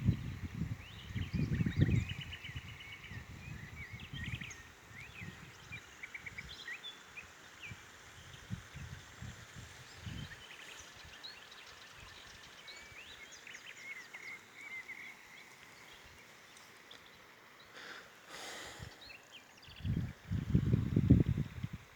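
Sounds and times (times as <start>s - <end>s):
small birds chirping: 0.0s - 21.9s
gust of wind: 19.8s - 21.9s.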